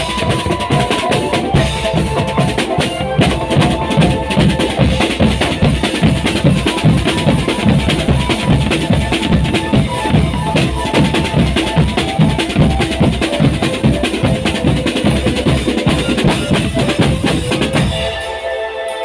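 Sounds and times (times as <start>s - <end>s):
bass and snare drums: 0.0s - 18.6s
held steady music notes: 0.0s - 19.0s
melody line: 15.4s - 19.0s.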